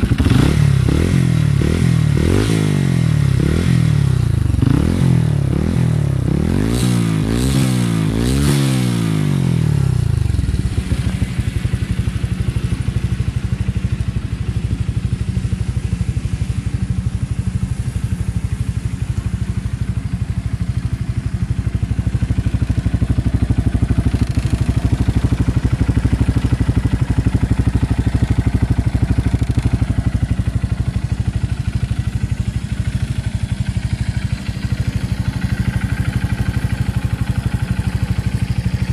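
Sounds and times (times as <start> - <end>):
motorcycle engine revving and idling: 0.0 - 38.9.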